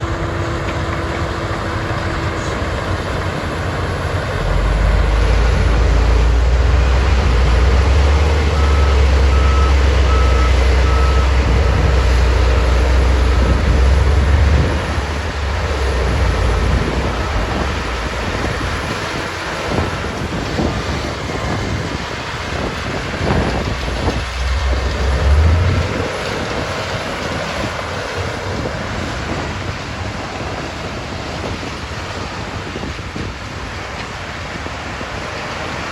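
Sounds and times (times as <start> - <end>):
heavy vehicle engine rumble: 0.0 - 35.9
wind noise on microphone: 2.6 - 35.9
reversing alarm beeping: 7.8 - 13.6, 15.8 - 18.0.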